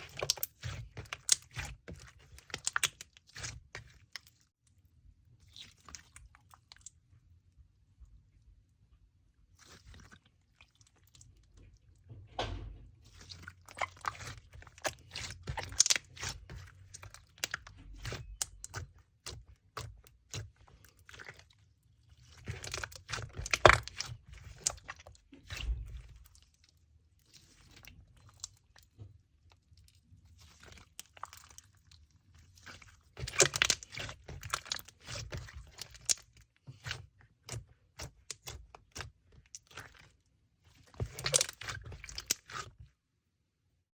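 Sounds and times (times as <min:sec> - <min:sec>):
slime clicking and crackling: 0:00.0 - 0:04.4, 0:13.1 - 0:21.5, 0:22.1 - 0:26.6, 0:30.4 - 0:42.8.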